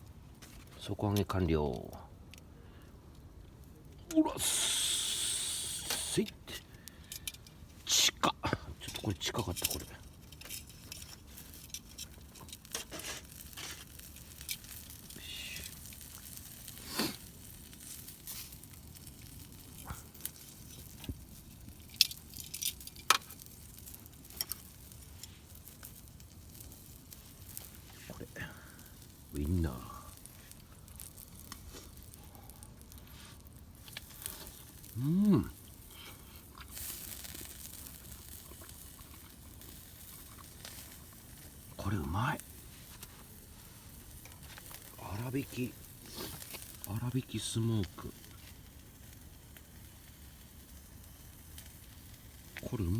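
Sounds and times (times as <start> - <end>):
campfire crackling: 0.0 - 52.9.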